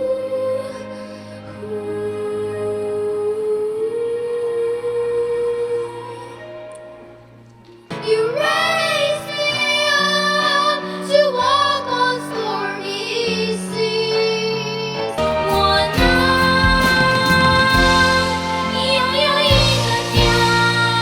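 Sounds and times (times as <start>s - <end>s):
high voice singing: 8.0s - 21.0s
sustained instrumental accompaniment: 13.6s - 21.0s
song playing: 14.9s - 21.0s.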